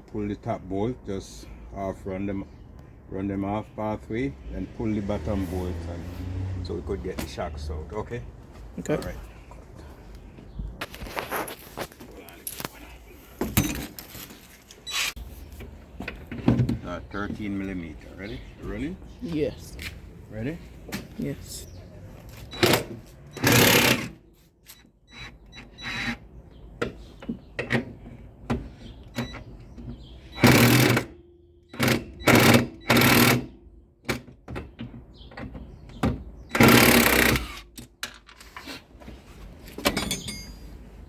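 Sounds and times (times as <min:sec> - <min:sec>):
power wrench hammering: 0:22.6 - 0:24.2, 0:30.4 - 0:34.2, 0:36.5 - 0:37.7.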